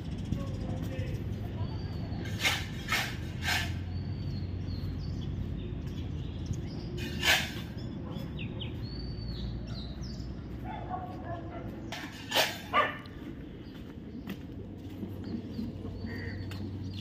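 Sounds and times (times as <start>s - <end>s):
small birds chirping: 0.0s - 17.0s
steady low rumble: 13.0s - 17.0s.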